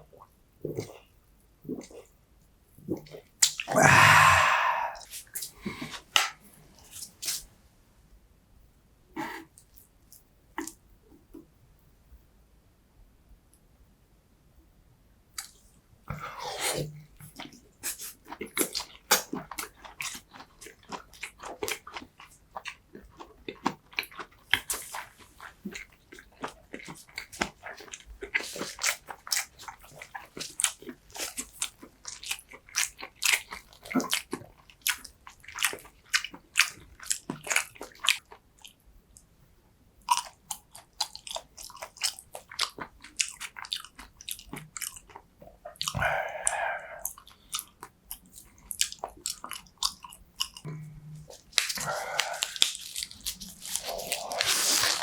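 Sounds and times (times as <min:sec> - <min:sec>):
wet mouth clicks and smacks: 0:03.1 - 0:03.8, 0:51.3 - 0:55.0
chewing and biting: 0:16.6 - 0:38.8, 0:40.1 - 0:55.0.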